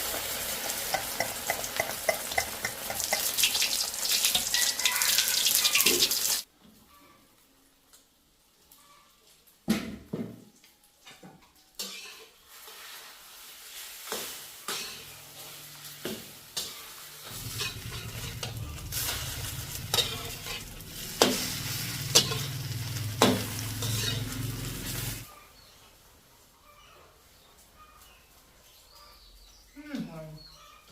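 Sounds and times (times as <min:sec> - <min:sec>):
fat sizzling in a pan: 0:00.0 - 0:06.5, 0:11.7 - 0:25.3
utensil scraping a pan: 0:11.8 - 0:25.3
low steady rumble: 0:17.2 - 0:25.2.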